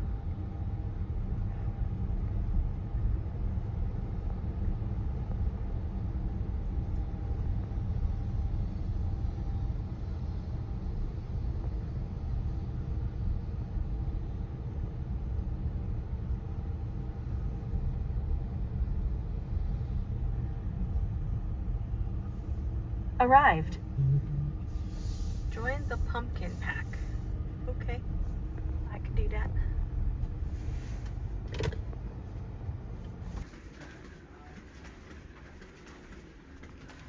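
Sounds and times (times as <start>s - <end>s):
car engine and tyre noise: 23.9s - 37.0s.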